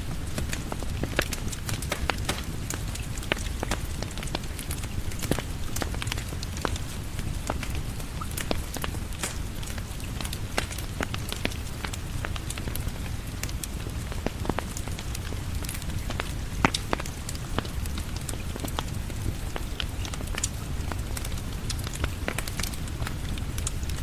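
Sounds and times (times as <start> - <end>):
low rumble of rain: 0.0 - 24.0
wood fire crackling: 0.0 - 24.0
sharp pops from fire: 0.2 - 6.8, 7.5 - 12.8, 15.6 - 18.9.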